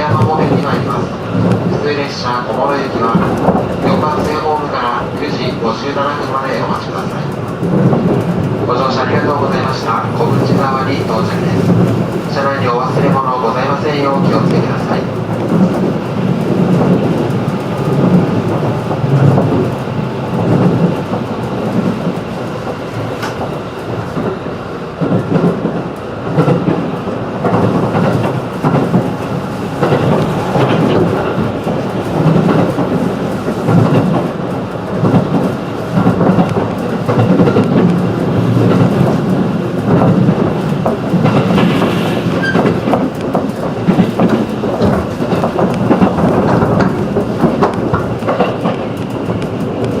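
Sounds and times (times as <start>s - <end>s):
clicking over rail joints: 0.0s - 50.0s
train wheels rumbling on rail: 0.0s - 50.0s.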